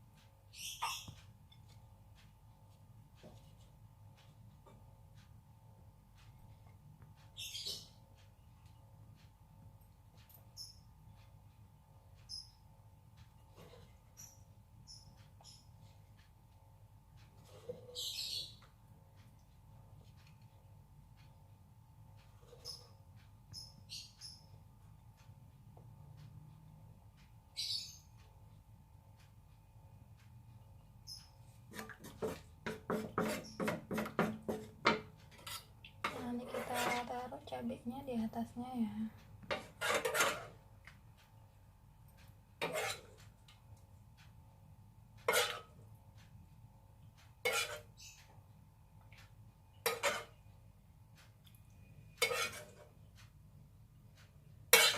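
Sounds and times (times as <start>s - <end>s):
small birds chirping: 0.3s - 1.4s, 7.1s - 9.0s, 10.2s - 11.4s, 12.1s - 12.8s, 13.6s - 16.2s, 17.3s - 20.2s, 22.2s - 25.3s, 27.2s - 28.7s, 30.6s - 31.7s, 33.4s - 33.8s, 47.8s - 48.7s.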